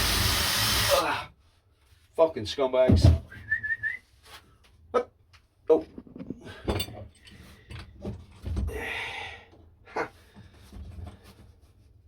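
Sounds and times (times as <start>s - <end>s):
man exhaling breathily: 8.7s - 10.3s.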